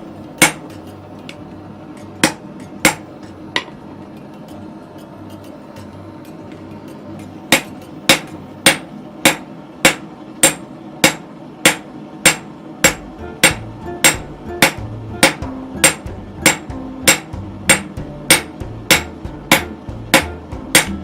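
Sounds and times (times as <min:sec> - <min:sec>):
hammer ringing on anvil: 0:07.6 - 0:21.0.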